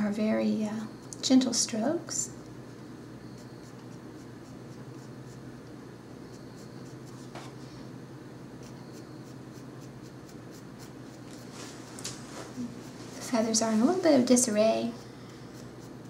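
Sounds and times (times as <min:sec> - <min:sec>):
pencil scratching on paper: 0:03.3 - 0:05.4, 0:08.6 - 0:11.5, 0:14.6 - 0:16.0.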